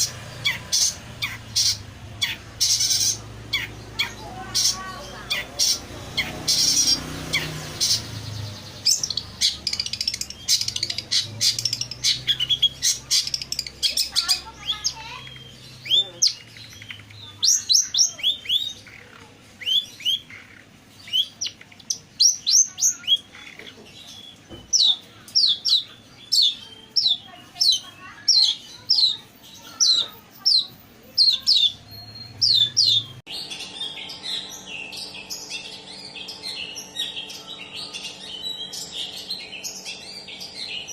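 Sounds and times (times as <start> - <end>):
bird chirping: 0.0 - 40.9
noisy chatter: 0.0 - 40.9.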